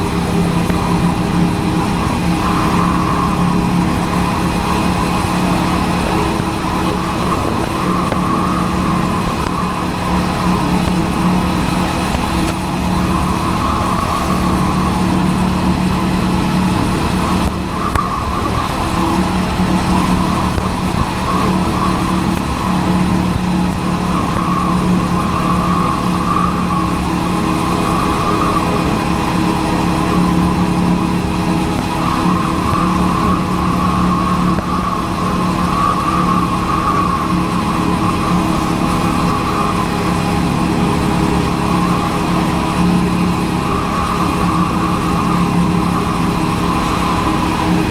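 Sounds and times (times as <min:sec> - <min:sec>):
motorcycle engine cruising: 0:00.0 - 0:47.9
wind rush on microphone: 0:00.0 - 0:47.9.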